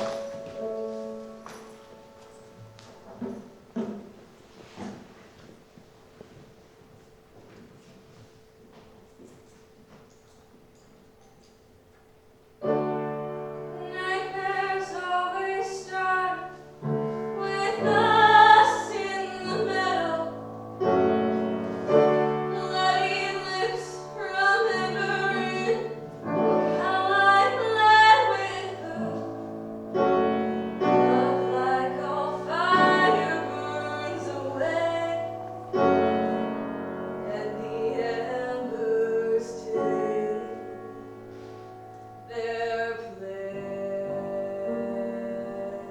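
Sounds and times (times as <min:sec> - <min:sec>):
piano accompaniment: 0:00.0 - 0:05.1, 0:08.0 - 0:45.9
person singing slow song: 0:30.7 - 0:41.1, 0:42.2 - 0:45.9.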